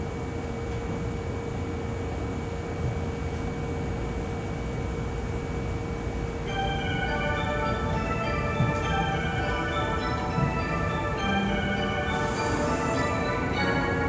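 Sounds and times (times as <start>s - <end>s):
electric train hum: 0.0s - 14.0s
chiming departure melody: 6.5s - 14.0s.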